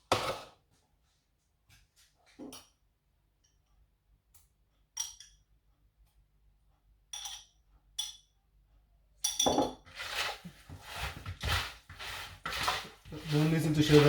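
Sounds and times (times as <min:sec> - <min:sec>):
kitchenware clinking: 0:05.0 - 0:05.5, 0:07.1 - 0:08.3, 0:09.2 - 0:10.0
kitchenware clatter: 0:07.1 - 0:08.3, 0:09.2 - 0:13.0.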